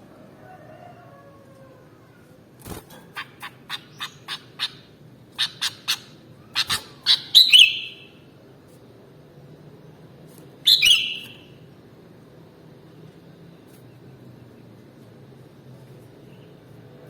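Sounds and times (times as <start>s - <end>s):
bird warbling: 3.0s - 8.2s, 10.7s - 11.4s
bird chirping: 3.1s - 8.2s, 10.7s - 11.5s.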